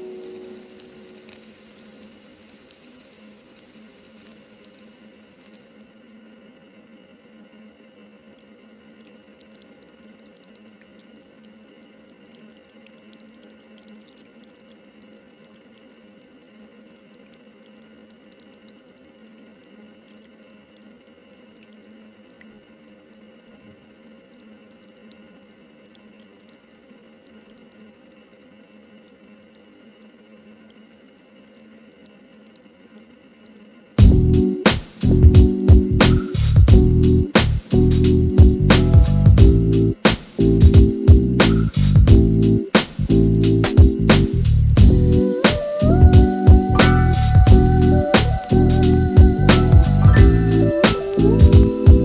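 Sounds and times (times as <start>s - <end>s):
steady low tone: 0.0s - 1.7s, 34.0s - 52.0s
low hum: 0.0s - 2.3s, 34.0s - 52.0s
trickling water: 6.9s - 45.4s
water drips: 8.4s - 34.2s
chillhop music with steady beat: 34.0s - 52.0s.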